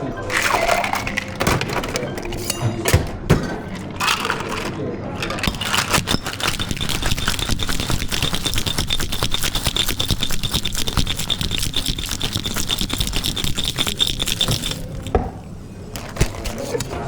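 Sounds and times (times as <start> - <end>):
ice rattling in cocktail shaker: 0.2 - 2.4, 3.8 - 15.2.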